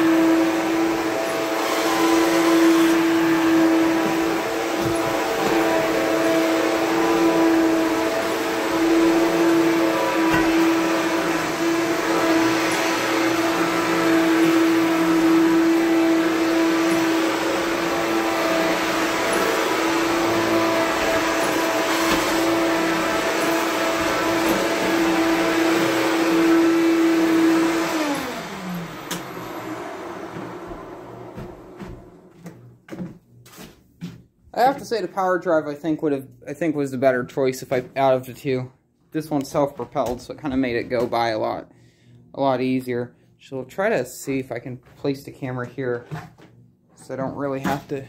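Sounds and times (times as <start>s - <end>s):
vacuum cleaner motor hum: 0.0s - 32.6s.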